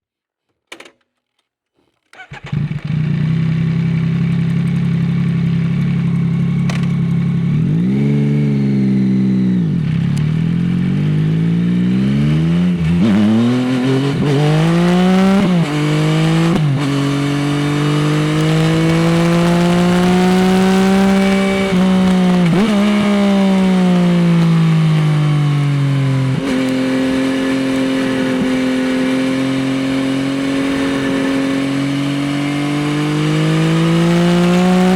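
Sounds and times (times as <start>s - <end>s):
motorcycle engine revving: 2.2s - 34.9s.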